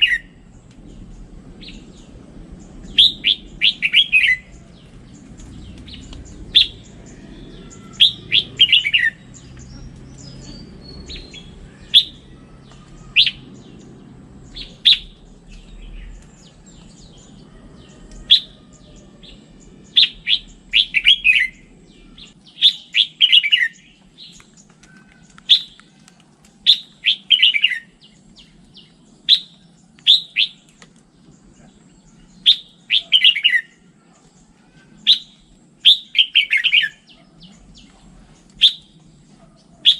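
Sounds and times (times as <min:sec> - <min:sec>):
low background rumble: 0:00.0 - 0:22.7
bulbul singing: 0:00.0 - 0:39.9.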